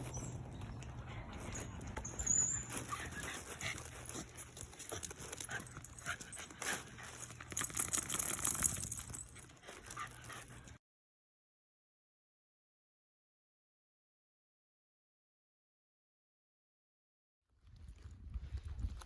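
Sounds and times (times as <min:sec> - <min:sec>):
puppies scuffling and clicking: 0:00.0 - 0:10.8.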